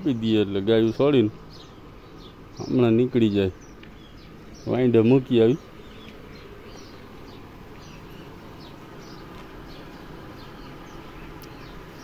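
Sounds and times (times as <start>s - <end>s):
faint steady background noise: 0.0s - 12.0s
small birds chirping: 0.0s - 12.0s.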